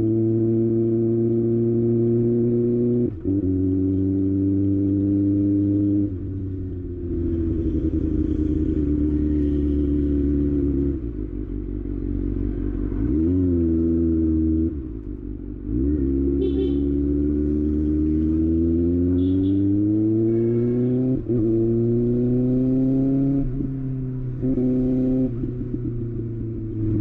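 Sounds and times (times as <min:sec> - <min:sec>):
motorcycle engine running: 0:05.0 - 0:13.0, 0:14.9 - 0:18.4.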